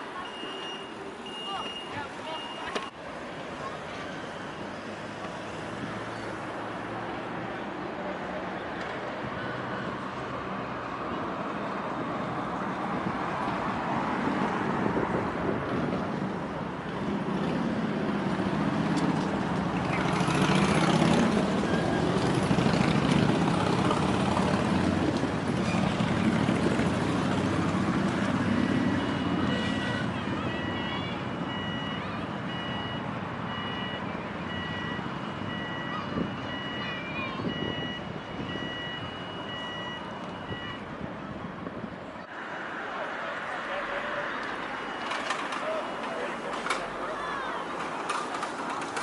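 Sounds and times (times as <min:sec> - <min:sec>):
railway car rumbling and rattling: 0:14.9 - 0:30.4, 0:44.5 - 0:49.0.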